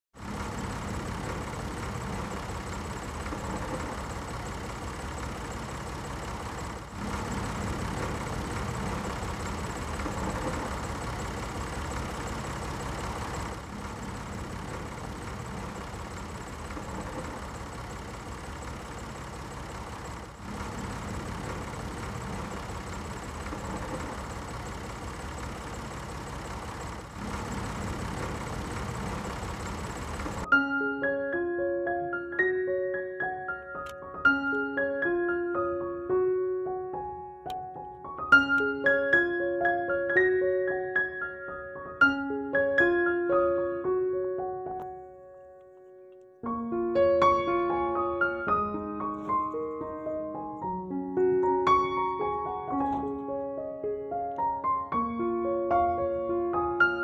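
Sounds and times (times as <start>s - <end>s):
tractor engine idling: 0.2s - 30.5s.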